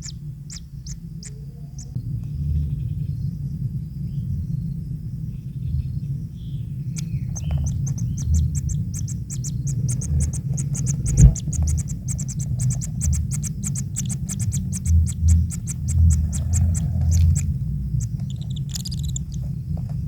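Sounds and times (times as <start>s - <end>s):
rapid high-pitched chirping: 0.0s - 2.0s, 6.9s - 19.5s
low rumble: 0.0s - 20.0s.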